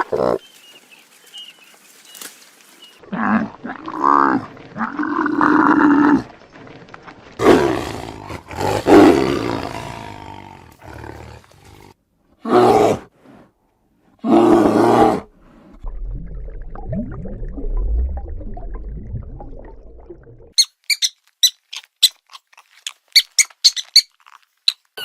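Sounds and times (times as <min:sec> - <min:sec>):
animal roaring: 0:07.4 - 0:13.1, 0:14.2 - 0:15.3
short high-pitched squeaks: 0:20.6 - 0:25.0.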